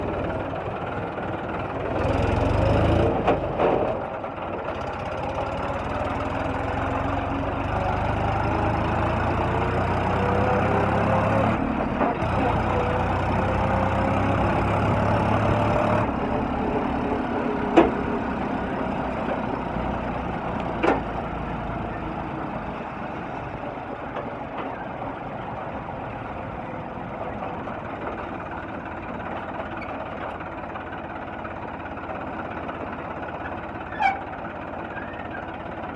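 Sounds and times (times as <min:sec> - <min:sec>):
tractor engine revving: 0:00.0 - 0:04.1, 0:04.7 - 0:23.6.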